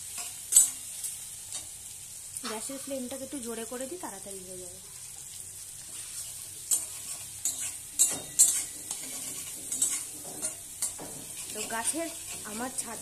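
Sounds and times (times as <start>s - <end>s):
spatula scraping a wok: 0.0s - 1.8s, 4.9s - 13.0s
vegetables sizzling in oil: 0.0s - 13.0s.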